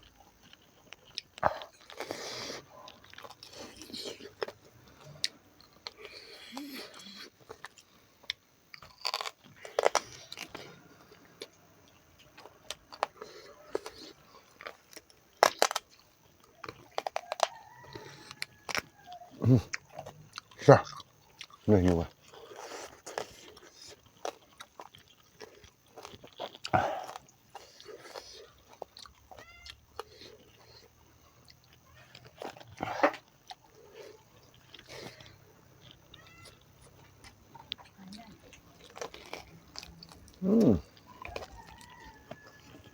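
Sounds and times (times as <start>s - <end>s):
person chewing and crunching: 0.0s - 42.9s
mouth smacks: 40.1s - 42.2s.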